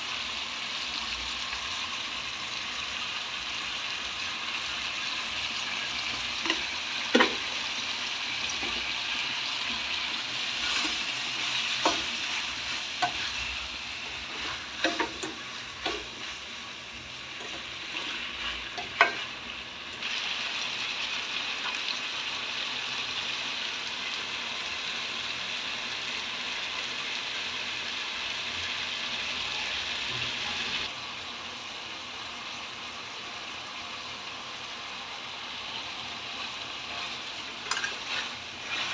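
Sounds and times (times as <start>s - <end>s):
food sizzling in a pan: 0.0s - 38.9s
spoon scraping a pan: 5.9s - 19.5s, 36.3s - 38.9s.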